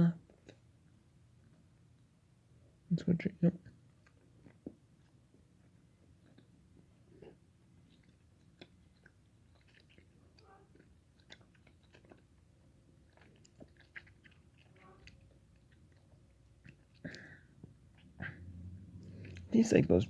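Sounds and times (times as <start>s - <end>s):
chewing mouth clicks: 4.0s - 19.5s.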